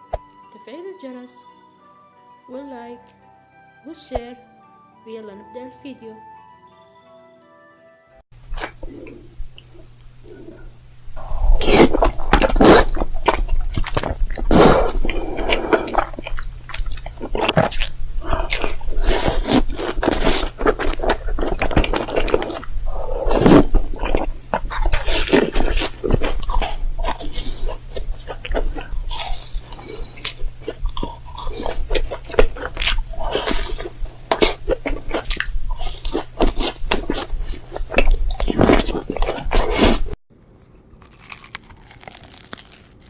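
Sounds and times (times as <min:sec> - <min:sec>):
crunchy chewing: 0:08.4 - 0:43.0.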